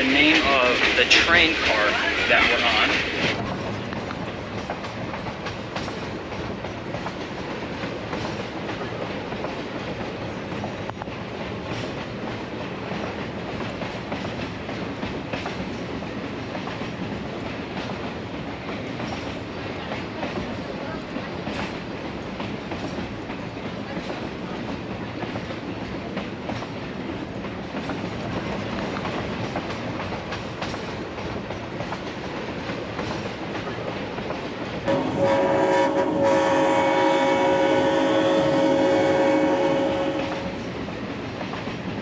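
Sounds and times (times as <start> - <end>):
train rumbling on rails: 0.0 - 42.0
locomotive horn: 34.9 - 40.6.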